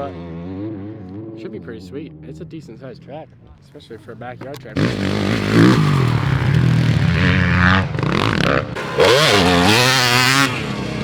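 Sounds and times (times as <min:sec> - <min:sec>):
dirt bike engine revving: 0:04.2 - 0:11.0.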